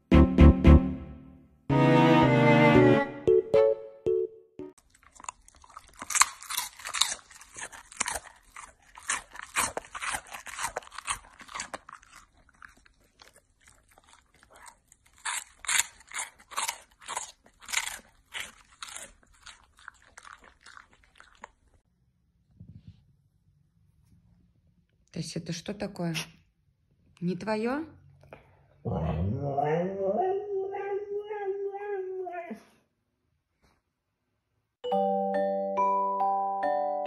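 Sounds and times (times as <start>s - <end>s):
dog chewing something crunchy: 4.8s - 21.8s.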